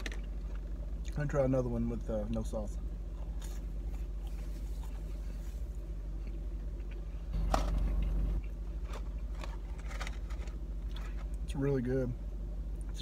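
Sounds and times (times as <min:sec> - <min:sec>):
low hum inside car: 0:00.0 - 0:13.0
chewing crunchy food: 0:03.1 - 0:11.5.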